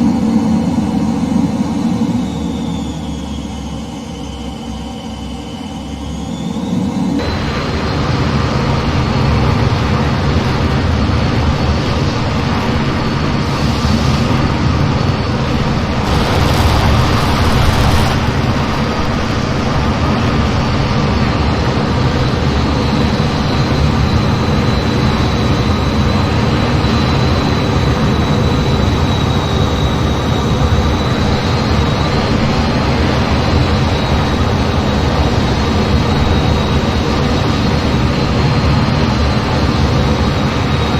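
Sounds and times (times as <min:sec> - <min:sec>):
jet engine and wind noise: 0:00.0 - 0:40.9
hissing surges: 0:15.5 - 0:20.6.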